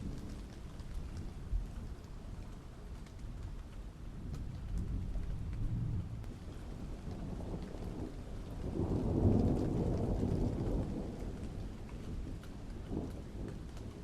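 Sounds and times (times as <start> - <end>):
steady rain: 0.0 - 14.0
thunder rumbling: 4.2 - 14.0.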